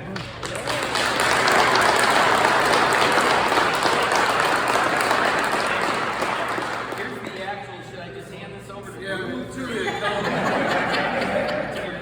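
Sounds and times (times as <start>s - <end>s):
crowd applauding: 0.1s - 7.5s.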